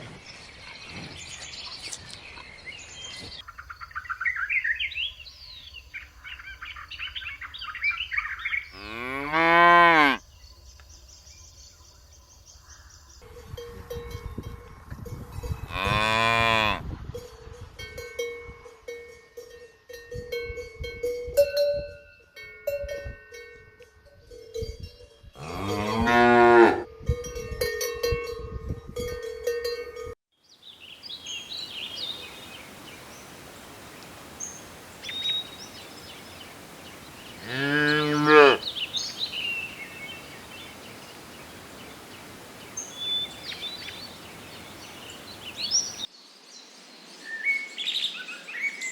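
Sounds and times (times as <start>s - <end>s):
small birds chirping: 0.2s - 13.2s, 30.4s - 48.9s
cow mooing: 8.7s - 10.2s, 15.7s - 16.8s, 25.4s - 26.9s, 37.4s - 38.8s
cowbell ringing: 13.2s - 15.6s, 17.2s - 25.9s, 27.1s - 30.2s.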